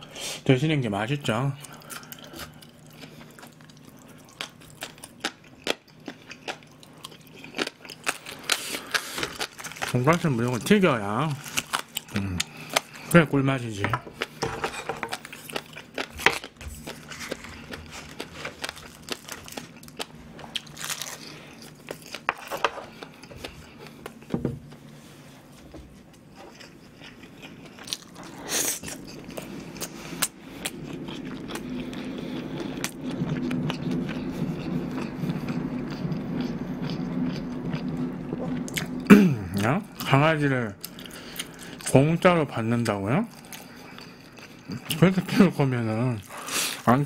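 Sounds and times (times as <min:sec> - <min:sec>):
faint low hum: 0:00.0 - 0:47.0
chewing and biting food: 0:01.6 - 0:13.1, 0:15.0 - 0:24.3, 0:26.2 - 0:40.1, 0:43.3 - 0:45.1.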